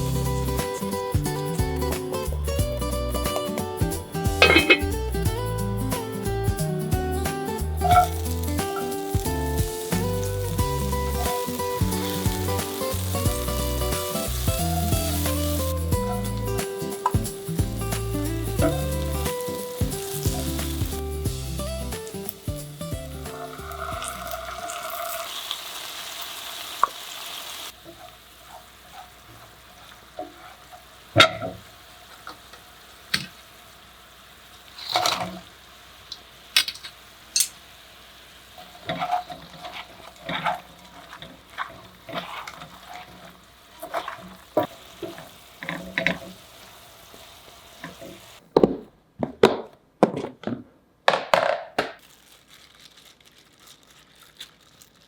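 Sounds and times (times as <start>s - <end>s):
food sizzling: 0.0s - 48.5s, 52.0s - 55.0s
utensils tapping on pans and dishes: 3.2s - 24.2s, 36.6s - 37.6s, 38.8s - 46.4s.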